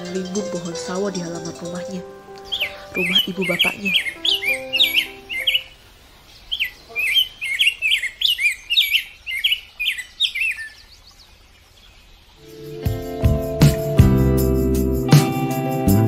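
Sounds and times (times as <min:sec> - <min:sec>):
music: 0:00.0 - 0:05.5, 0:12.4 - 0:16.0
small bird chirping: 0:00.0 - 0:14.0.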